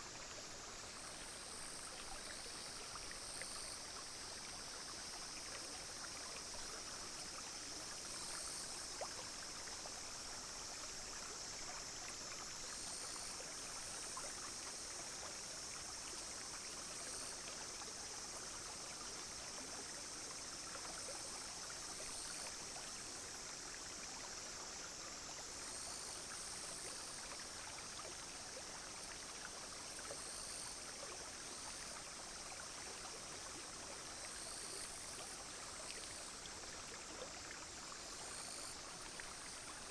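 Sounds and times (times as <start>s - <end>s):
brook babbling: 0.0s - 39.9s
cicadas and insects droning: 0.0s - 39.9s.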